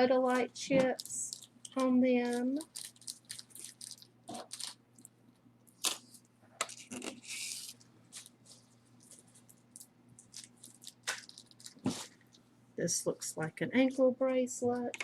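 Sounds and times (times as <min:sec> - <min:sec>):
plastic packaging crinkling: 0:00.3 - 0:05.1, 0:05.7 - 0:12.4.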